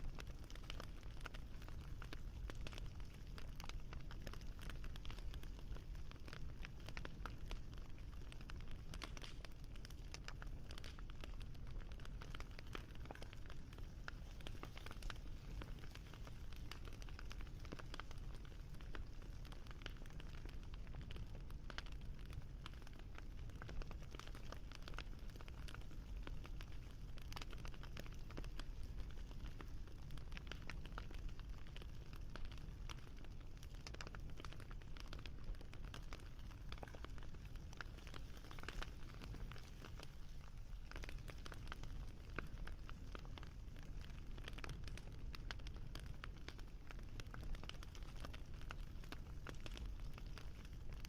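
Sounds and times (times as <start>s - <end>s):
wood fire crackling: 0.0s - 51.0s.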